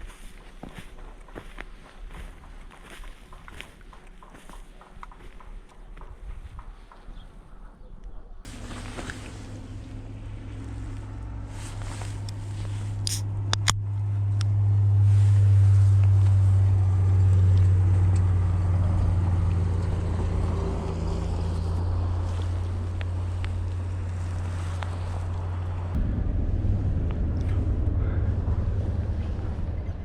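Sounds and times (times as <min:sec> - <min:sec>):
engine humming steadily: 0:08.5 - 0:30.0.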